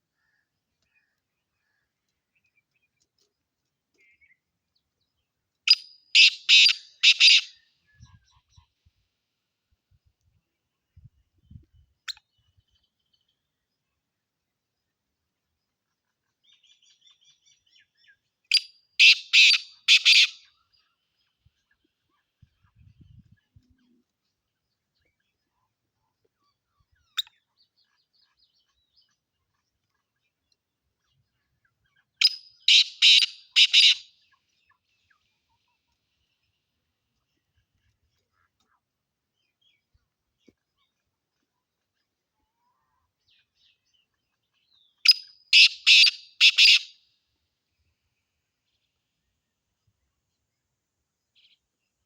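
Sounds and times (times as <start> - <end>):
bird chirping: 0.0 - 8.8, 14.6 - 47.0
harsh grating bird calls: 6.2 - 7.6, 19.0 - 20.5, 32.2 - 34.1, 45.1 - 46.9
partridge harsh rasping call: 32.7 - 34.0, 45.1 - 46.9.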